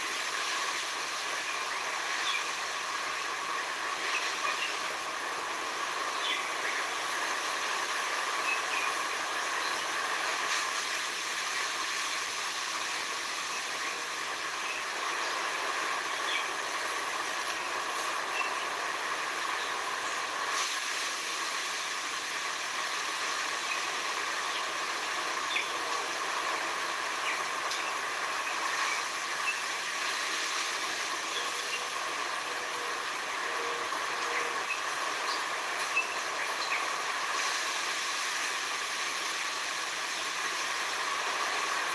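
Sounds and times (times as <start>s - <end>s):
steady hiss: 0.0s - 41.9s
faint chirps: 23.1s - 38.0s.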